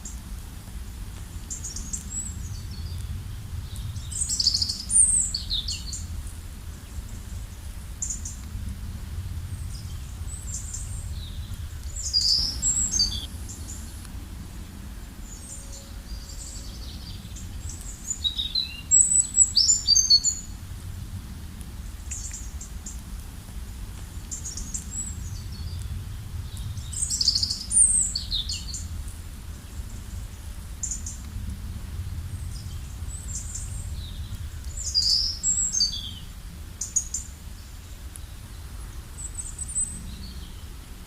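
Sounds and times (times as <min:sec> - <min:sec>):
steady low rumble: 0:00.0 - 0:41.0
birds chirping and trilling: 0:01.5 - 0:06.1, 0:09.5 - 0:20.6, 0:24.3 - 0:29.0, 0:32.3 - 0:37.7.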